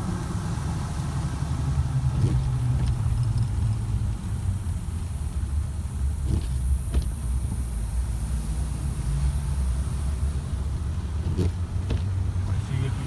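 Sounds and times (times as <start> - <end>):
car engine running: 1.2 - 8.2, 9.8 - 13.0.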